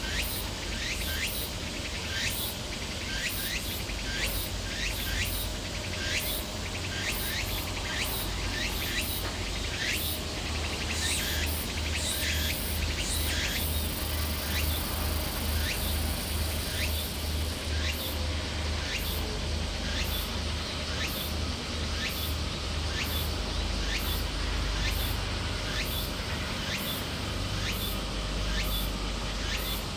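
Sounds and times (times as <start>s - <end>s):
insects chirping: 0.0s - 18.1s.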